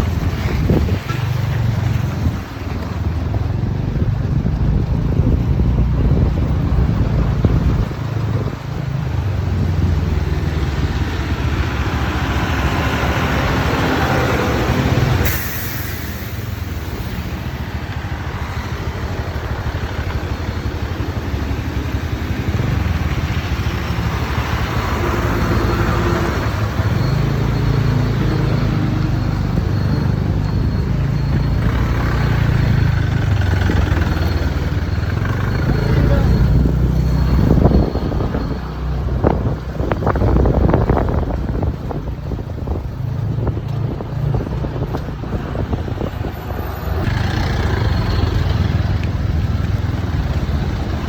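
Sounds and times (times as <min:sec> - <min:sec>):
wind and road noise: 0:00.0 - 0:51.0.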